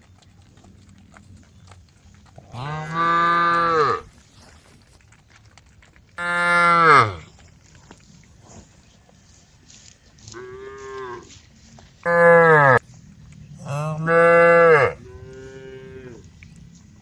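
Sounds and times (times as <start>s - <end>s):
cows mooing: 2.4s - 4.2s, 6.2s - 7.3s, 12.0s - 12.8s, 13.5s - 16.5s.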